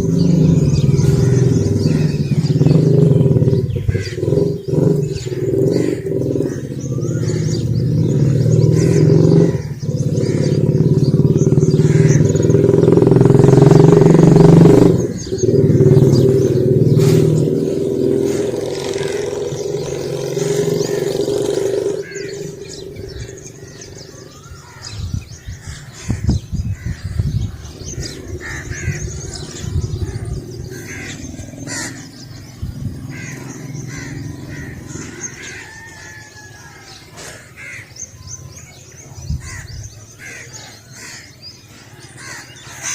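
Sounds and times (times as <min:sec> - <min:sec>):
vehicle engine passing by: 0:00.0 - 0:24.7, 0:27.6 - 0:35.7
birds chirping: 0:00.0 - 0:42.9.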